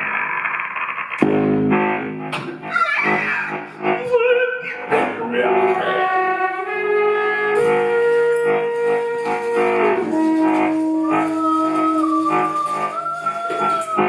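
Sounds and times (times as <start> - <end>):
instrumental ensemble playing: 4.9 - 14.0.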